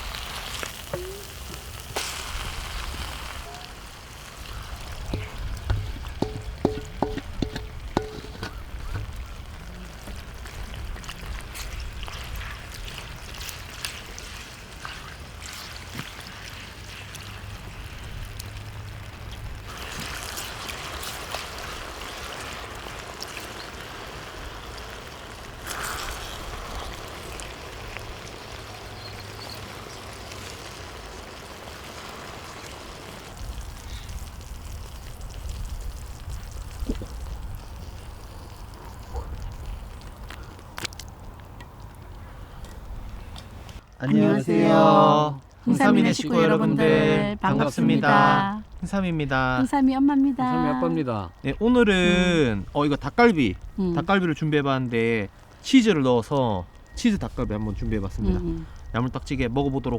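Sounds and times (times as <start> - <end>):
chicken sizzling on a griddle: 0.0 - 40.0.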